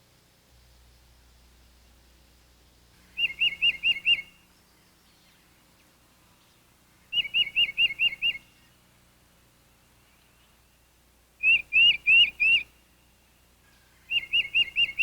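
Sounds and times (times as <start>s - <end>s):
songbird whistling song: 3.1s - 5.8s, 7.1s - 8.8s, 11.4s - 13.1s, 13.7s - 15.0s.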